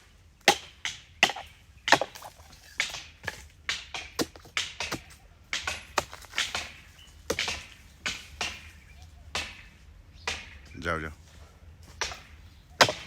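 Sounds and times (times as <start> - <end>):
blade chopping palm trunk: 0.4 - 8.8, 12.0 - 13.0.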